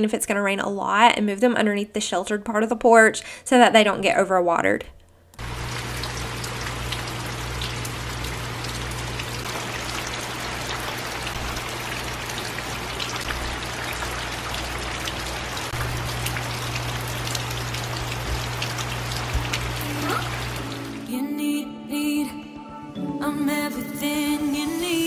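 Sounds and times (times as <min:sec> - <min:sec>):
steady rain falling: 0:05.4 - 0:21.1
water dripping off roof eaves: 0:05.4 - 0:21.1.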